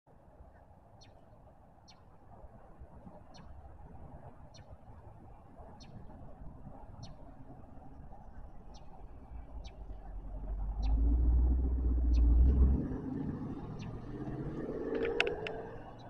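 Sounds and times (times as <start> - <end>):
car engine driving past: 9.2 - 16.0.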